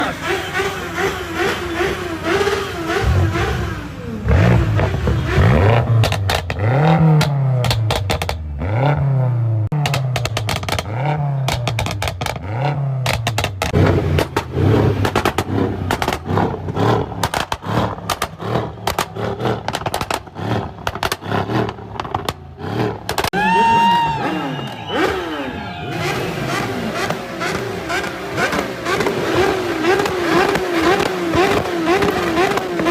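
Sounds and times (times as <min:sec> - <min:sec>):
car engine revving: 0:00.0 - 0:32.9
exhaust crackles and pops: 0:04.4 - 0:09.0, 0:09.6 - 0:23.4, 0:26.0 - 0:32.9.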